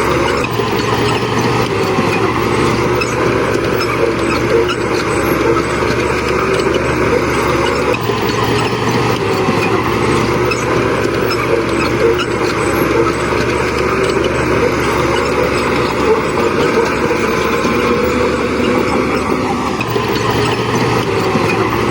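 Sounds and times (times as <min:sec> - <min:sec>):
diesel engine running under load: 0:00.0 - 0:21.9.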